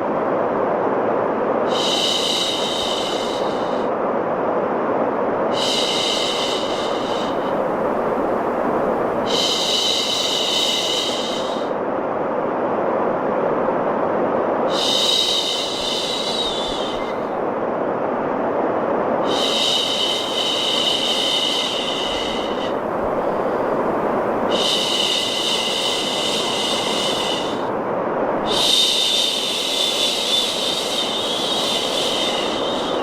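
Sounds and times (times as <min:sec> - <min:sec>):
low rushing white noise: 0:00.0 - 0:33.0
person shushing: 0:28.4 - 0:33.0.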